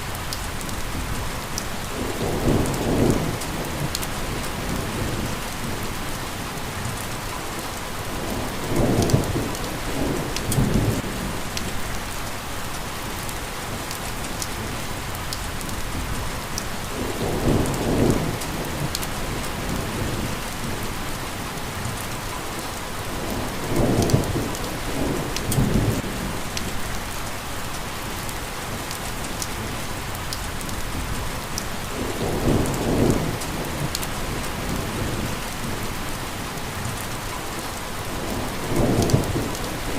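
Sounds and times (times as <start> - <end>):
steady rain: 0.0 - 39.9
thunder rumbling: 32.0 - 35.9, 38.1 - 39.9.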